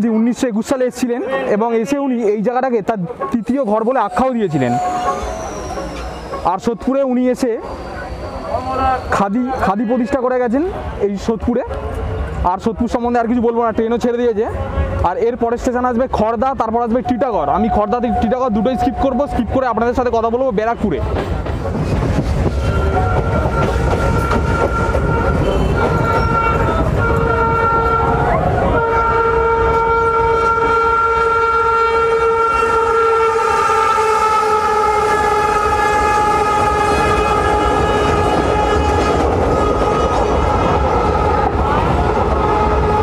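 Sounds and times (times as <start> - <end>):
train wheels rumbling: 2.9 - 43.0
train motor whine: 3.4 - 9.9, 16.9 - 43.0.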